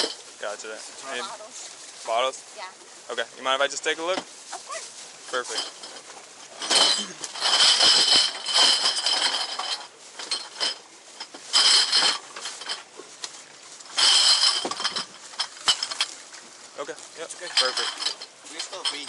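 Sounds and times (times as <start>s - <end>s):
glass bottles clinking: 0.0s - 0.6s, 5.2s - 13.2s, 13.8s - 19.0s.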